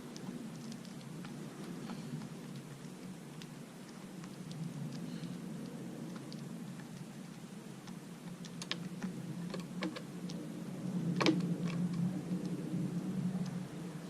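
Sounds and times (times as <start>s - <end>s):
low steady hum: 0.0s - 14.0s
light clicks and taps: 0.1s - 10.4s.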